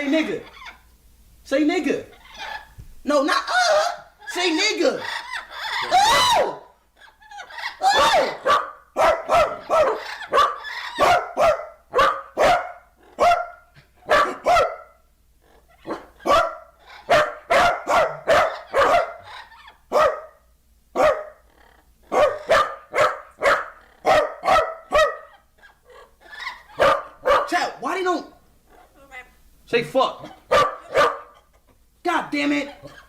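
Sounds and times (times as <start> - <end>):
dog barking: 7.8 - 15.1, 15.8 - 21.4, 22.1 - 25.4, 26.0 - 27.8, 30.2 - 31.5.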